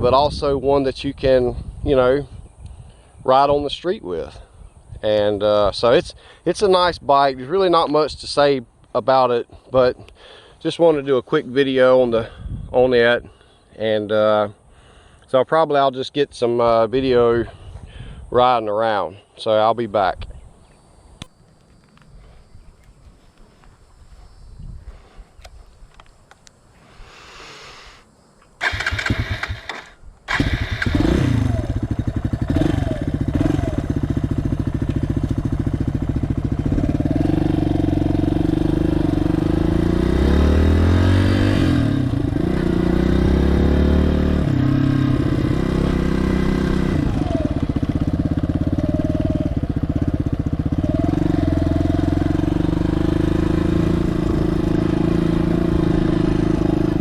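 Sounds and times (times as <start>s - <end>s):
motorcycle engine starting and running: 28.6s - 57.0s.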